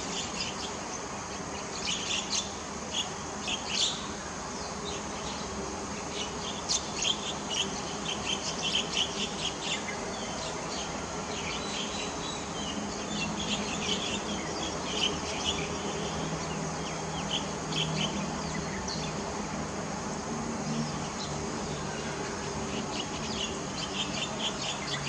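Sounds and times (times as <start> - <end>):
small birds chirping: 20.6 - 25.0.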